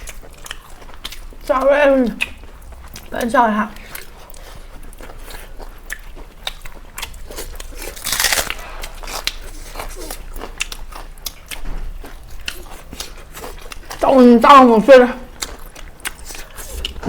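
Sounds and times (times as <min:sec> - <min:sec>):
chewing with crackling clicks: 0:00.0 - 0:14.0, 0:15.2 - 0:17.0
loud crunch: 0:07.3 - 0:09.9.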